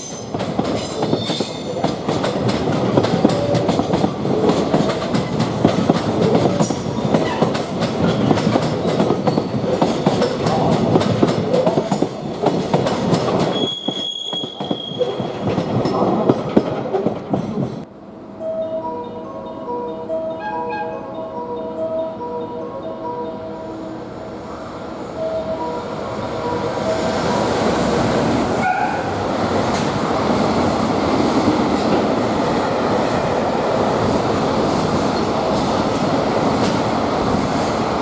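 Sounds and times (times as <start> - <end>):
train wheel squeal: 0.0 - 1.8, 13.4 - 15.4, 20.4 - 21.1
freight train rumbling past: 0.0 - 38.0.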